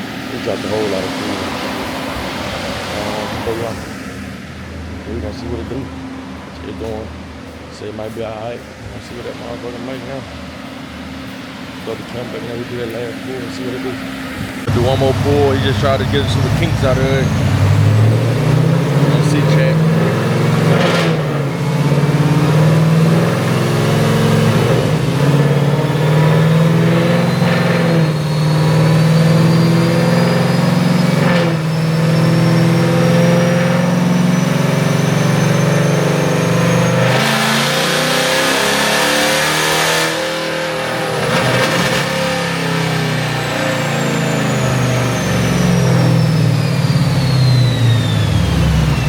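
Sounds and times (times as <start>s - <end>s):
loud rushing noise: 0.0s - 28.2s
car engine under load: 0.0s - 49.0s
rising whine: 0.0s - 49.0s.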